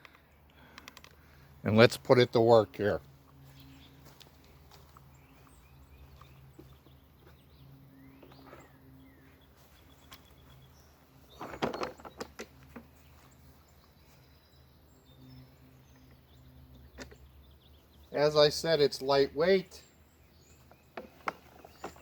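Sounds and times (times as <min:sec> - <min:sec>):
lawn mower clattering knocks: 0:11.3 - 0:12.9, 0:20.9 - 0:22.0.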